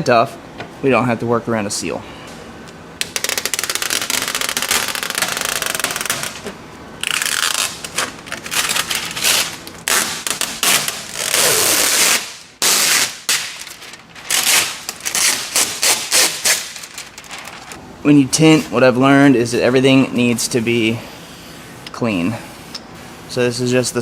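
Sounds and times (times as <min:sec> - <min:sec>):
tint film crackling clicks: 0:03.0 - 0:17.8.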